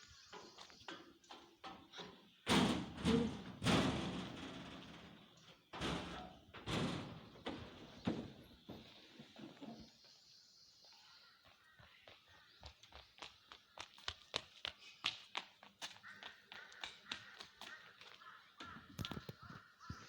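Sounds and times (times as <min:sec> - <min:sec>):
loud heavy thumps: 0:02.5 - 0:08.5.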